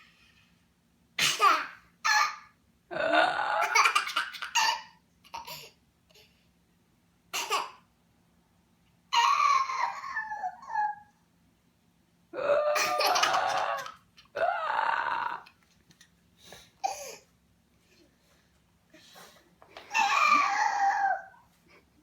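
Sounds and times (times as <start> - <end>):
toddler making silly noises: 9.2 - 11.2, 12.4 - 15.5, 19.9 - 21.5.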